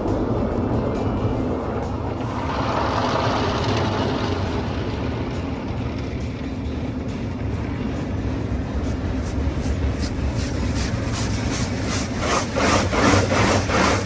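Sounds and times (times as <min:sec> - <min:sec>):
low hum: 0:00.0 - 0:14.0
brush scrubbing back and forth: 0:08.8 - 0:14.0.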